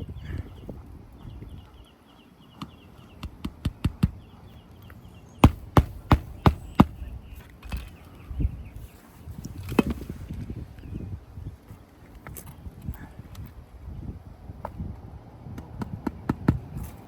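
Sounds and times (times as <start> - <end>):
hammer blows on roof shingles: 5.4 - 7.1, 15.5 - 17.0.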